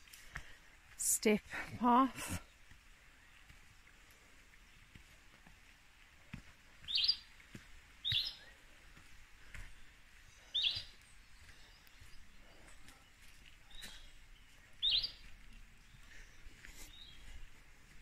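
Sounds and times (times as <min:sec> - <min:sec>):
soft footsteps on path: 0:00.0 - 0:18.0
bird chirping: 0:06.8 - 0:07.3, 0:08.0 - 0:08.6, 0:09.7 - 0:17.5.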